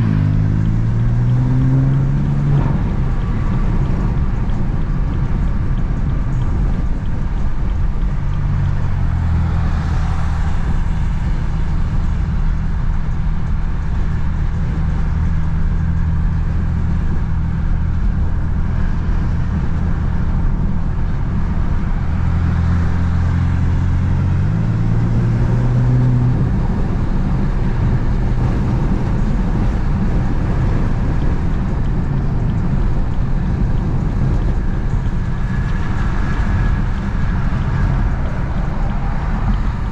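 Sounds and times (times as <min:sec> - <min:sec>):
car engine low note: 0:00.0 - 0:39.9
tyre and road noise: 0:00.0 - 0:39.9.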